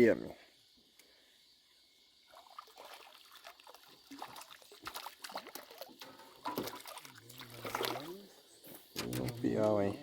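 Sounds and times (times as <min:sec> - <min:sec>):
water splashing and trickling: 0:02.1 - 0:10.0.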